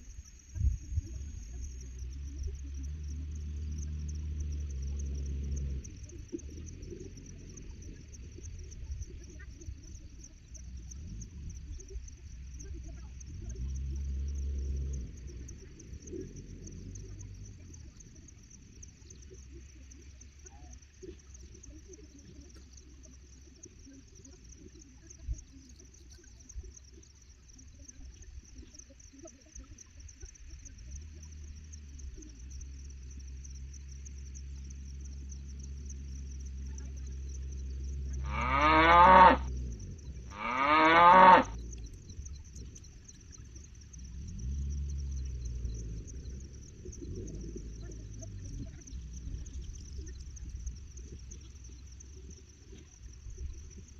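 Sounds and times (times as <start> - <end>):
low rumble: 30.6 - 53.9
high insect buzz: 34.2 - 46.0
cattle mooing: 38.2 - 39.5, 40.3 - 41.6.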